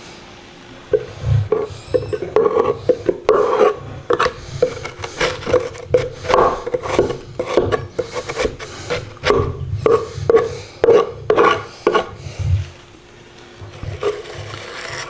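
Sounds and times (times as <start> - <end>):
nest material scraped from birdhouse: 4.1 - 7.2.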